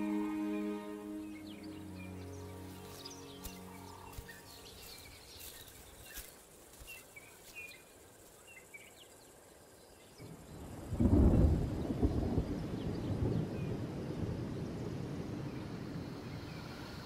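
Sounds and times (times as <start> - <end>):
low rumble of thunder: 10.2 - 17.0.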